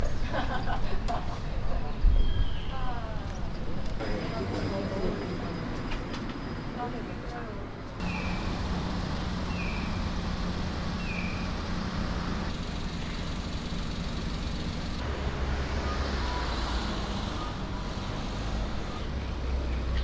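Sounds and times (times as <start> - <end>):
road rumble: 0.0 - 4.2, 5.4 - 20.0
vehicle engine hum: 8.0 - 19.7.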